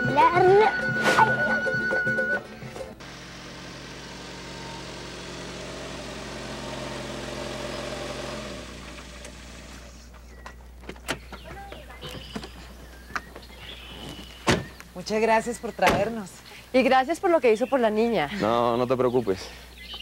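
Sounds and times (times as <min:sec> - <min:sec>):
car engine running: 0:00.0 - 0:14.8.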